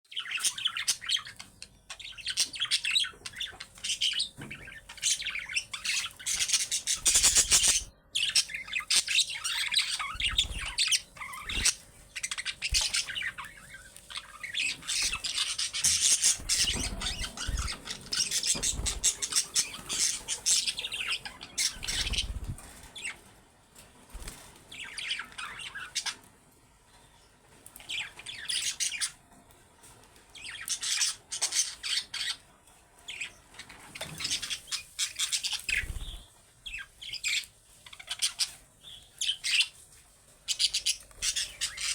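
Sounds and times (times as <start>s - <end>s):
budgerigars chattering: 0.2s - 23.1s, 34.1s - 39.7s.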